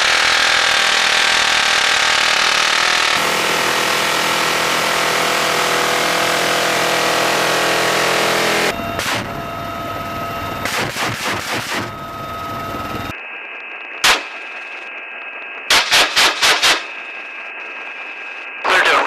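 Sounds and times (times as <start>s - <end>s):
helicopter cabin noise: 8.7s - 13.1s
machine gun firing: 10.6s - 11.9s, 15.7s - 17.0s.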